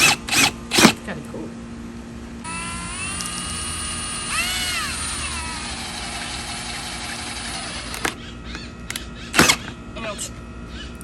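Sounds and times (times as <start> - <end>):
electric drill motor whine: 0.0 - 1.0, 2.4 - 8.2, 8.9 - 9.8.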